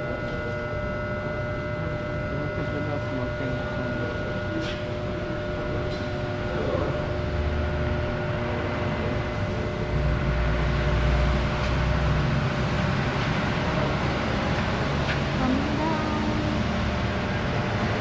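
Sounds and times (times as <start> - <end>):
constant tones: 0.0 - 18.0
mechanical rumble and hum: 0.0 - 18.0.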